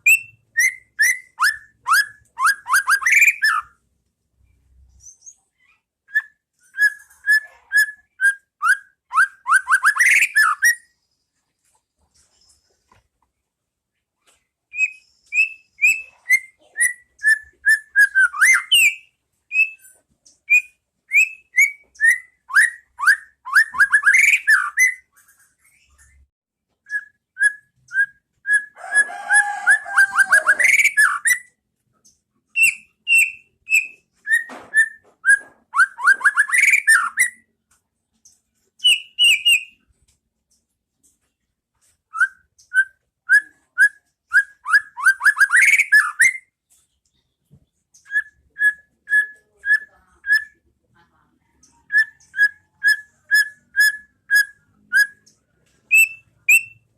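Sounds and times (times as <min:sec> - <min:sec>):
bird singing whistled trills: 0:00.0 - 0:03.8, 0:06.1 - 0:10.9, 0:14.7 - 0:19.9, 0:20.5 - 0:25.1, 0:26.9 - 0:28.8, 0:32.6 - 0:37.4, 0:38.8 - 0:39.8, 0:42.1 - 0:46.5, 0:55.9 - 0:56.9.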